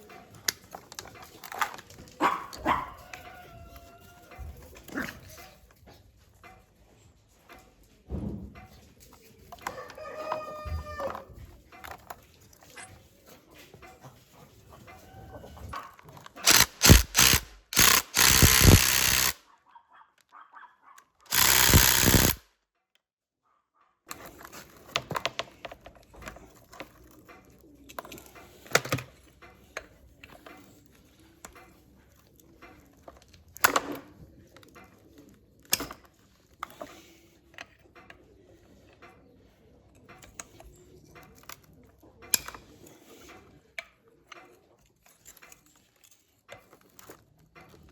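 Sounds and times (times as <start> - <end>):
tools clicking and knocking: 15.8 - 19.4, 21.3 - 23.0, 35.6 - 38.2, 39.9 - 47.9
hissing bursts: 16.4 - 19.4, 21.3 - 22.4.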